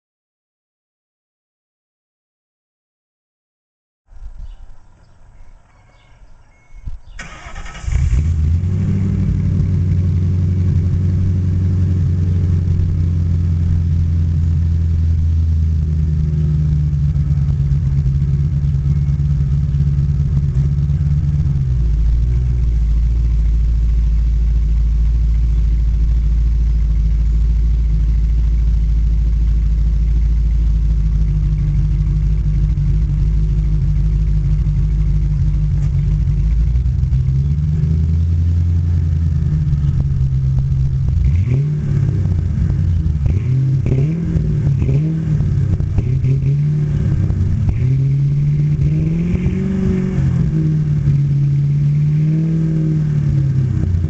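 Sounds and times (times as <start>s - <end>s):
car engine cranking: 7.2s - 13.7s, 29.7s - 54.0s
loud open pipe engine idling: 17.2s - 37.6s.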